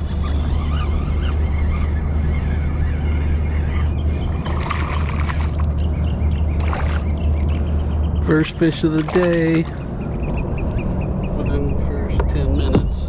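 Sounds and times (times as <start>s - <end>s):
steady low rumble: 0.0s - 13.0s
water splashing: 4.4s - 7.7s, 8.7s - 10.6s.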